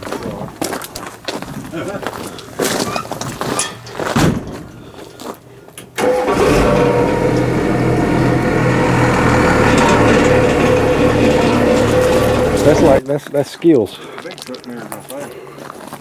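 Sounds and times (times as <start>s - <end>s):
knocks and clatter: 6.0s - 13.0s
truck engine idling: 6.0s - 13.0s.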